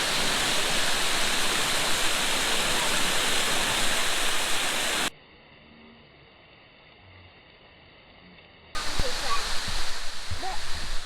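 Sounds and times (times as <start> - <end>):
water rushing over a dam: 0.0 - 5.1, 8.8 - 11.0.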